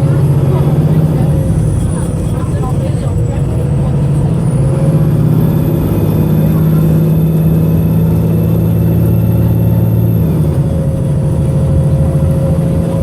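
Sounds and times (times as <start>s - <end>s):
bus engine running at full throttle: 0.0s - 13.0s.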